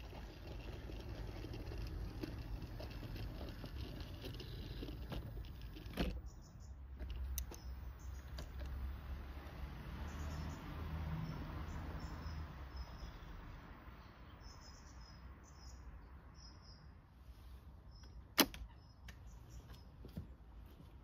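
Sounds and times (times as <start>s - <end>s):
model train rumbling on track: 0.0s - 6.0s
sharp click: 18.0s - 19.2s.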